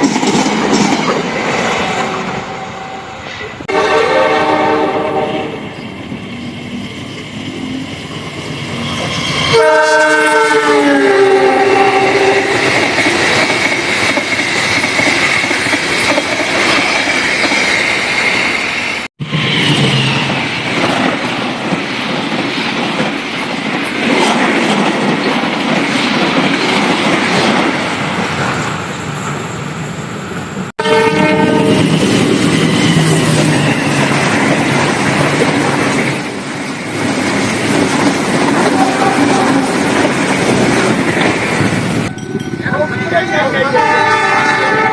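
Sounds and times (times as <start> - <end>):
train wheels rushing on rail: 0.0 - 44.9
train horn: 1.8 - 5.8, 9.5 - 12.7, 30.8 - 32.0, 38.6 - 39.8, 43.5 - 44.9.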